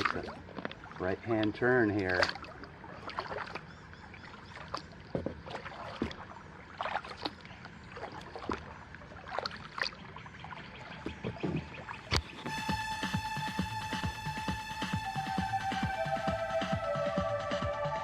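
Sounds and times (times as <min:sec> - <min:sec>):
paddle splashes in water: 0:00.0 - 0:12.7
water trickling off paddle: 0:00.0 - 0:17.5.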